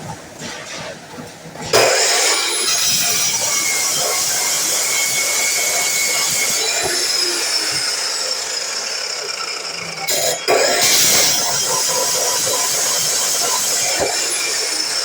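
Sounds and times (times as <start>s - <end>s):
miter saw cutting metal: 1.6s - 15.0s.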